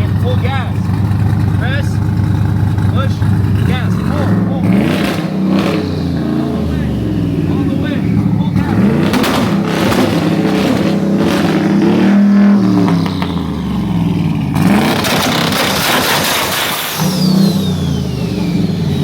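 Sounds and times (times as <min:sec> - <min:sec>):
engine revving with crackling pops: 0:00.0 - 0:19.0
turbo rushing blast with whistle: 0:15.1 - 0:19.0.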